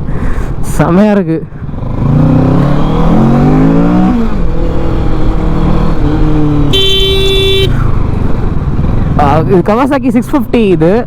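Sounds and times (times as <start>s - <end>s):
motorcycle engine accelerating: 1.6s - 9.9s
vehicle horn: 6.7s - 7.8s.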